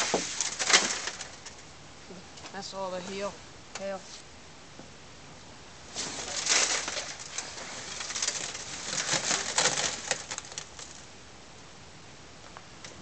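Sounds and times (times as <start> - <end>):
cloth cover rustling: 5.9 - 10.8.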